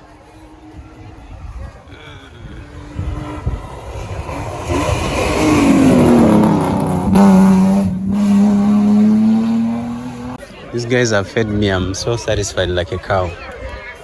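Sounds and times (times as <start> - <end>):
rally car engine at speed: 0.0 - 10.4.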